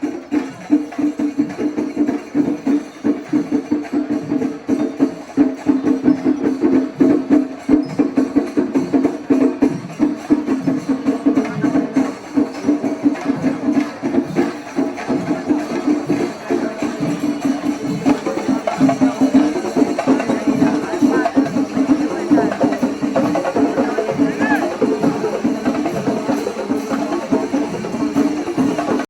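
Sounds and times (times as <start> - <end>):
fast continuous drumming: 0.0 - 29.0
jangling cymbals: 0.0 - 29.0.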